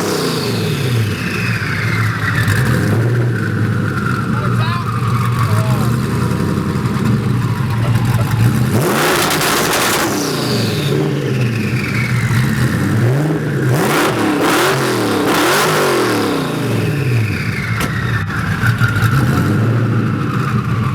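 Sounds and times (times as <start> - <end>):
car engine idling and revving: 0.0 - 20.9.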